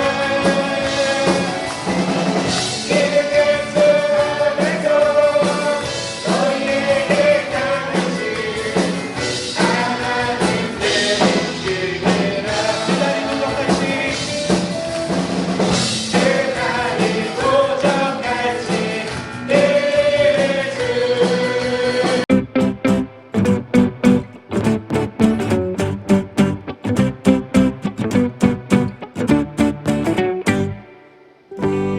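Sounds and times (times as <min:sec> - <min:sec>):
group singing worship song: 0:00.0 - 0:14.8, 0:15.7 - 0:22.3
band with steady beat: 0:00.0 - 0:30.9.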